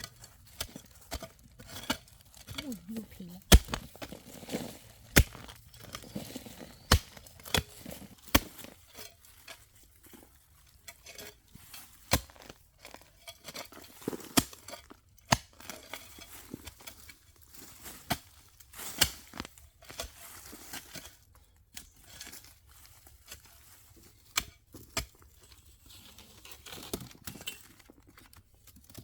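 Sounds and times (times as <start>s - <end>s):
soft rustling and crinkling: 0.0s - 29.0s
sharp knocks or chops: 3.5s - 4.0s, 5.2s - 5.5s.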